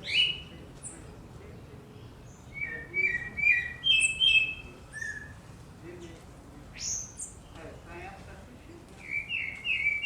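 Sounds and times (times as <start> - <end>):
birds chirping and whistling: 0.0 - 0.5, 2.3 - 5.4, 9.0 - 10.0.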